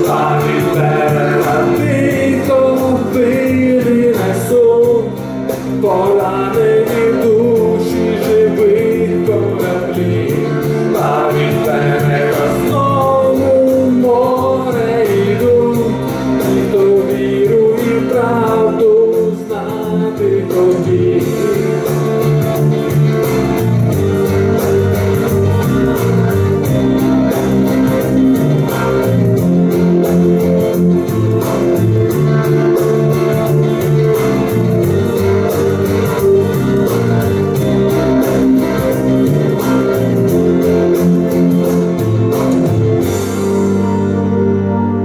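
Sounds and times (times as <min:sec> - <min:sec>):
bass: 0:00.0 - 0:45.0
guitar: 0:00.0 - 0:45.0
held keyboard chord: 0:00.0 - 0:45.0.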